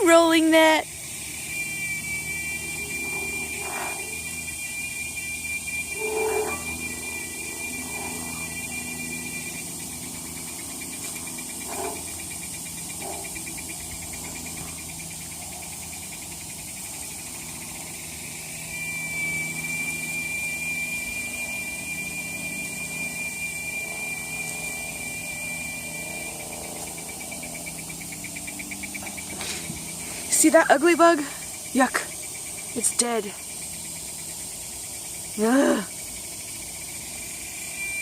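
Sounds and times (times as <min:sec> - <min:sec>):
insect trill: 0:00.0 - 0:38.0.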